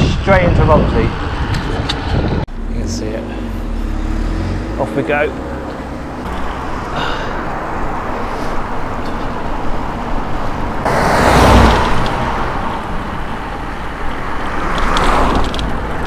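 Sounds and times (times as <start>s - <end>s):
wind and road noise: 0.0s - 16.0s
loud rushing swell: 10.2s - 13.8s.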